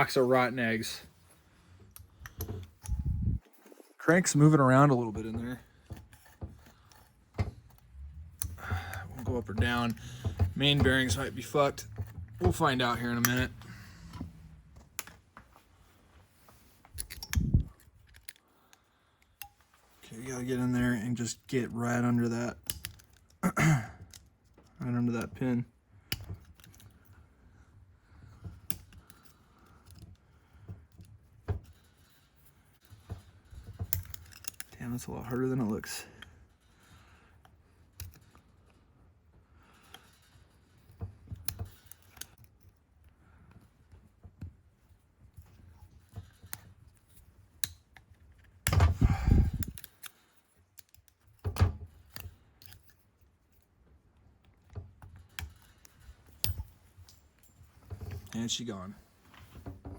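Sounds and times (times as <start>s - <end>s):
metal tool clicking and scraping: 5.7s - 12.2s, 16.9s - 19.6s, 31.7s - 34.8s, 45.6s - 53.7s.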